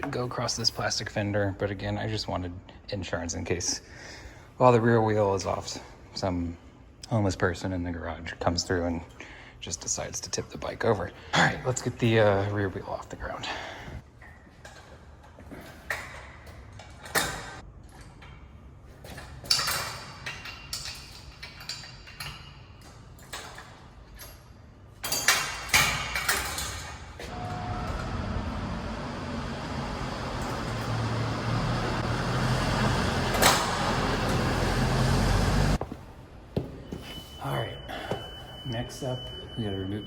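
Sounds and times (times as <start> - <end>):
mechanical hum with hiss: 18.4 - 40.0
metal clanks of lifting gear: 33.3 - 34.4.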